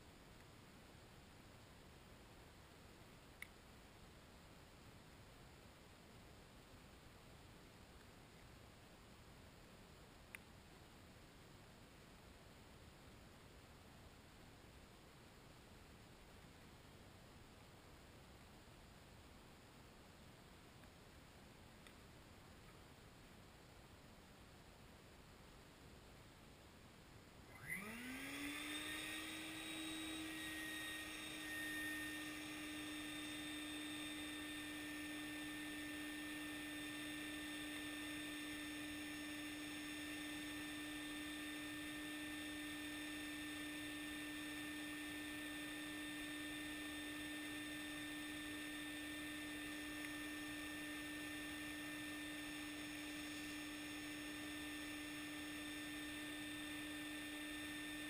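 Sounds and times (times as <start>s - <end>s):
wet vac motor whine: 27.5s - 58.0s.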